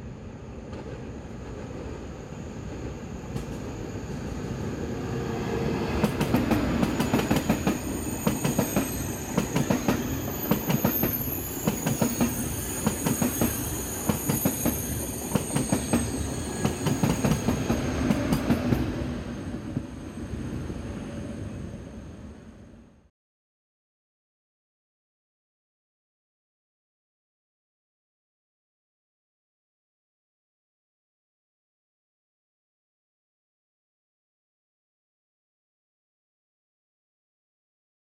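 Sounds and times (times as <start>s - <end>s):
high-speed train passing: 0.0s - 23.1s.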